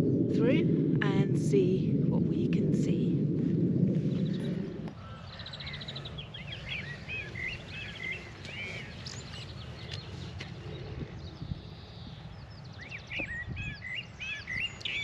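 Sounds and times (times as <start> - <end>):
low rushing noise: 0.0 - 8.9
low background rumble: 0.0 - 10.1
small birds chirping and trilling: 4.1 - 15.0.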